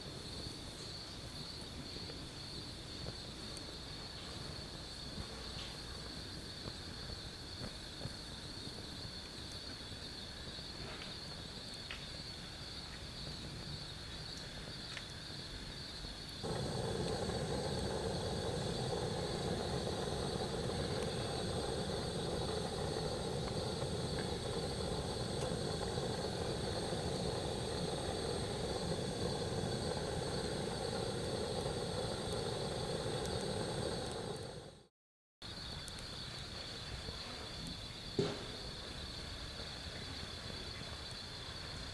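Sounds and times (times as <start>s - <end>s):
night insects chirring: 0.0s - 34.8s, 35.4s - 41.9s
low rushing noise: 16.4s - 34.9s.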